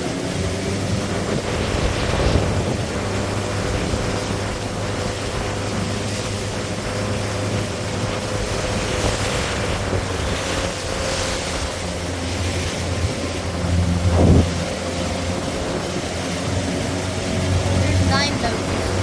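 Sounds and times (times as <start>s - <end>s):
motorboat engine running: 0.0s - 19.0s
water rushing past hull: 0.0s - 19.0s
wind buffeting microphone: 0.0s - 19.0s.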